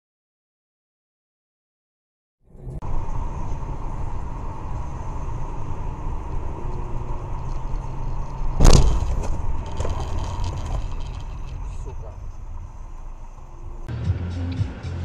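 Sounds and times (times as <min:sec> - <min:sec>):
car road and engine rumble: 0:02.5 - 0:15.0
clattering: 0:07.4 - 0:13.6
vehicle collision bang: 0:08.5 - 0:13.9.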